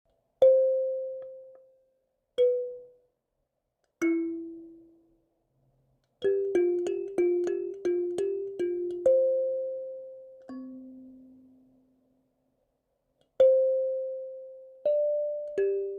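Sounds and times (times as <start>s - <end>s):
plucked melodic instrument notes: 6.2s - 11.4s.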